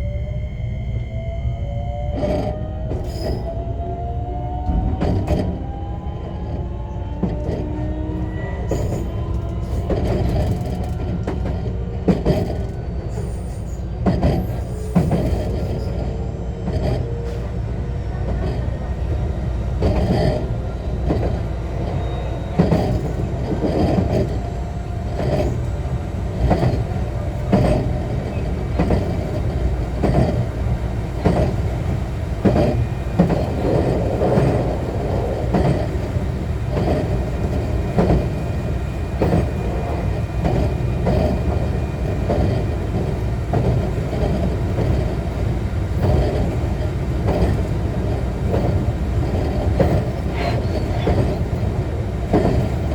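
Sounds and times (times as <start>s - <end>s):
train interior rumble: 0.0s - 52.9s
wheels clacking over rail joints: 22.6s - 52.9s.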